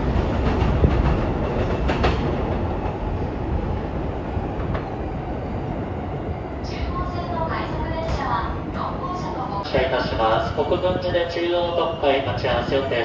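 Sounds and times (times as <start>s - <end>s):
train wheels clacking on rail joints: 0.0s - 3.1s
train rumble: 0.0s - 13.0s.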